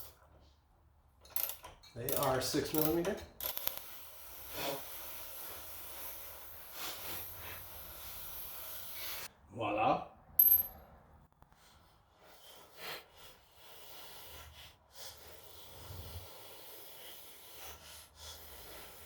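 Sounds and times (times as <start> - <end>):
breathing: 3.8 - 9.3, 11.6 - 19.0
metallic clink: 10.4 - 10.8.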